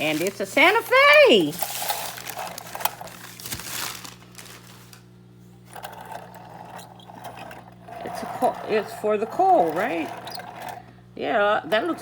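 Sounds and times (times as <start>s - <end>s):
packing material crinkling: 0.0s - 5.1s.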